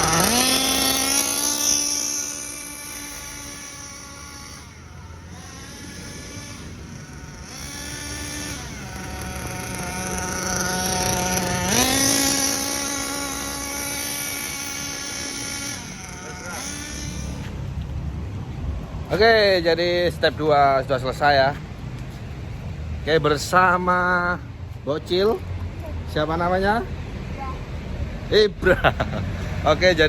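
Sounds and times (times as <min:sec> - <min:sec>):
model car engine buzzing whine: 0:00.0 - 0:18.4.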